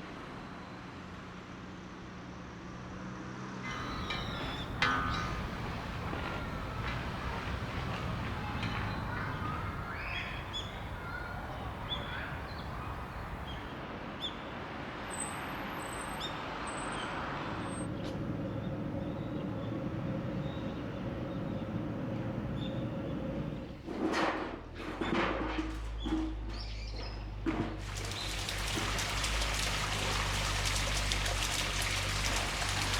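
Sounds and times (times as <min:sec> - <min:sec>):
small birds chirping: 0:03.7 - 0:14.4, 0:17.6 - 0:23.8.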